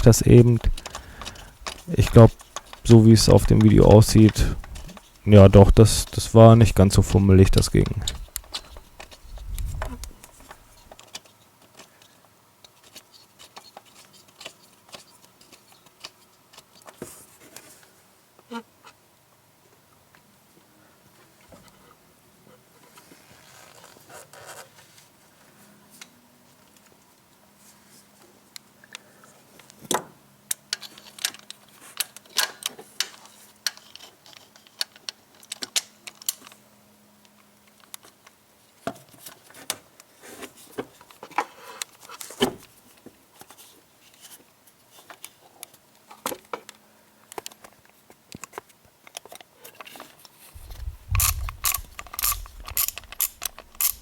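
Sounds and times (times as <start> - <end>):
socket ratchet clicking: 50.6 - 54.0
metallic clicks of hand tools: 50.8 - 54.0.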